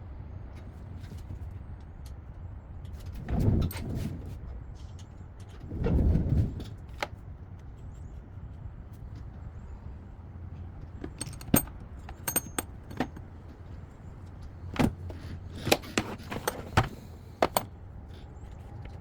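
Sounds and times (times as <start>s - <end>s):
metal tools clinking: 11.0s - 13.4s, 15.5s - 17.7s.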